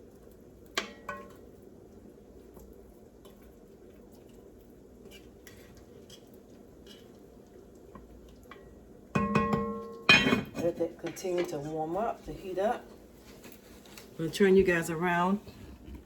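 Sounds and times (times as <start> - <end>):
low room hum: 0.0 - 16.0
kitchen utensils clinking: 9.2 - 11.7.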